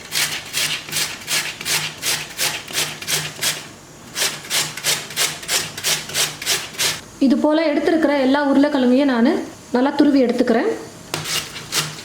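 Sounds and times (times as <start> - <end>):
potato grating on grater: 0.0 - 7.0, 11.1 - 12.0.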